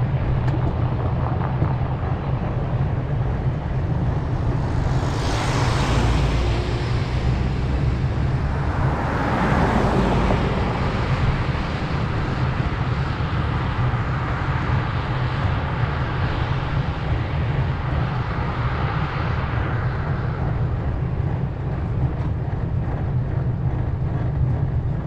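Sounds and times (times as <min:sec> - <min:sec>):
vehicles passing close by: 0:00.0 - 0:16.6
low road rumble: 0:00.0 - 0:25.0.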